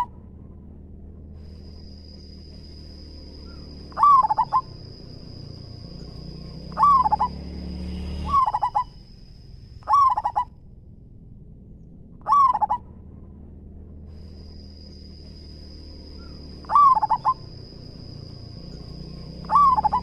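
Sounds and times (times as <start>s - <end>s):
dove cooing: 3.4s - 7.4s, 8.3s - 9.0s, 9.8s - 10.5s, 12.2s - 12.9s, 16.2s - 18.0s, 19.2s - 20.0s.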